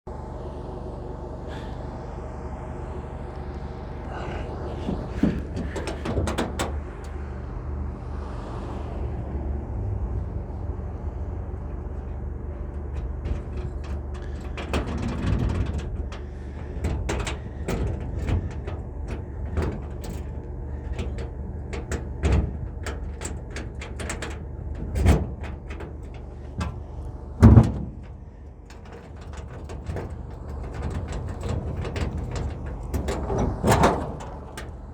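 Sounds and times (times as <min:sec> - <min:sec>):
vehicle engine idling: 0:00.1 - 0:34.9
clicks knocks and clunks: 0:04.7 - 0:07.2, 0:11.9 - 0:34.9.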